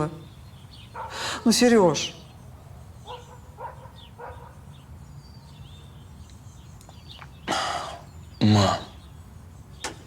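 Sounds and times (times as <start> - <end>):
faint dog barking: 0.9 - 1.3, 3.0 - 4.6
faint bird chirp: 2.0 - 10.0.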